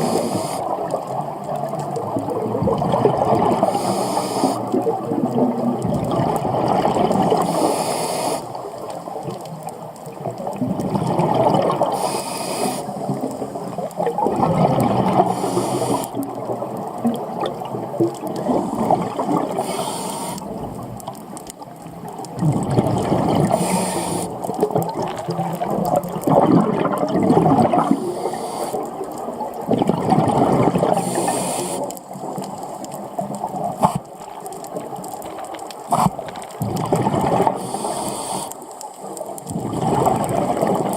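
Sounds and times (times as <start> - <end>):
regulator inhalation hiss: 0.0 - 0.8, 3.6 - 4.7, 7.4 - 8.6, 11.9 - 13.1, 15.3 - 16.2, 19.5 - 20.5, 23.5 - 24.4, 28.0 - 28.9, 31.0 - 31.9, 37.6 - 38.8
exhaled bubbles gurgling: 0.0 - 40.9.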